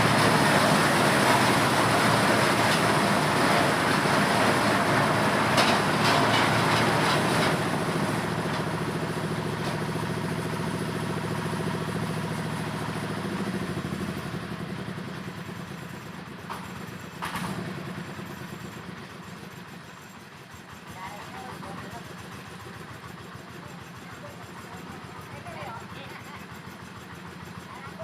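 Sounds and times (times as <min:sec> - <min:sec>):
corn sheller clattering rush: 0:00.0 - 0:12.6, 0:19.5 - 0:28.0
engine hum: 0:00.0 - 0:19.8.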